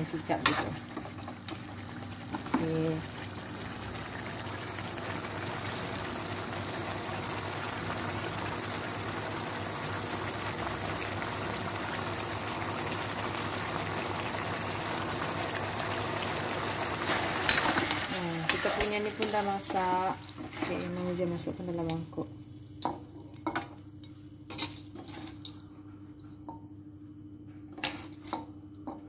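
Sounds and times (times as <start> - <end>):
meat sizzling and bubbling in a wok: 0.0 - 21.9.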